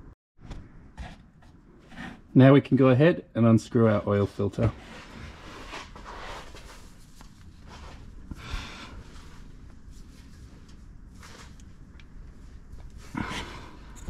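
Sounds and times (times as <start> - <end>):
man breathing hard with effort: 8.2 - 9.6, 12.9 - 14.0.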